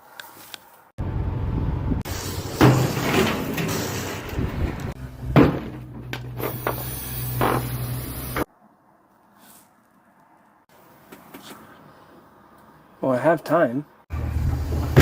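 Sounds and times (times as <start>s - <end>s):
diesel engine running: 1.0s - 8.4s, 14.1s - 15.0s
loud metallic clanks: 2.5s - 4.4s.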